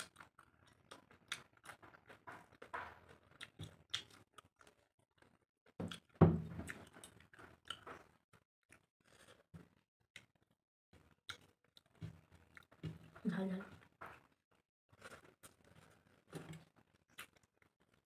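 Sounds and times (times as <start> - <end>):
chewing and wet mouth clicks: 0.0 - 6.0, 11.0 - 11.9, 16.5 - 18.0
loud thump: 6.2 - 6.7.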